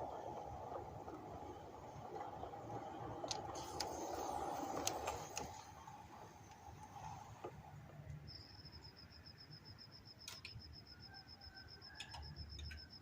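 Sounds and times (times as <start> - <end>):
faint high-pitched rapid beeping: 8.2 - 13.0.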